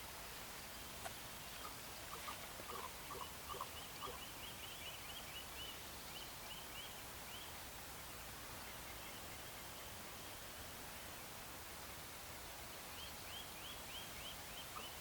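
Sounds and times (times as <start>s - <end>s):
short low bird calls: 1.6s - 4.8s.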